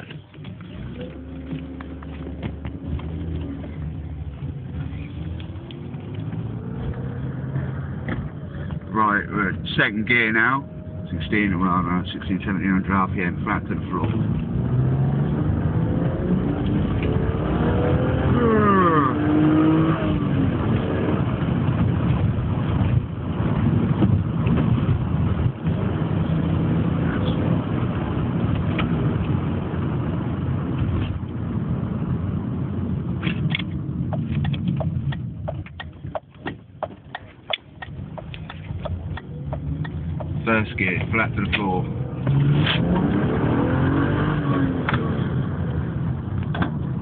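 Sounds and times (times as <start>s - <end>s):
car engine at full throttle: 0.0s - 47.0s
sharp clicks: 33.3s - 40.4s.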